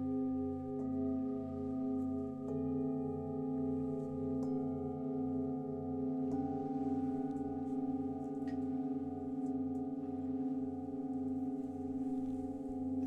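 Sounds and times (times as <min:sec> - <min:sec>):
singing bowl ringing: 0:00.0 - 0:13.0.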